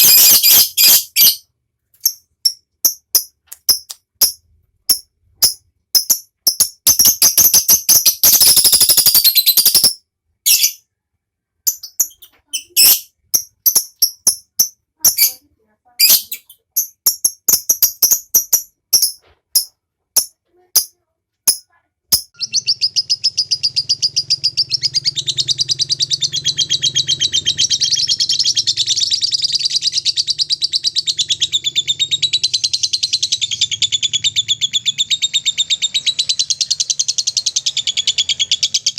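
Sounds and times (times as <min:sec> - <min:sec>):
lovebird chattering trill: 0:00.0 - 0:01.4, 0:11.7 - 0:15.4, 0:21.5 - 0:38.9.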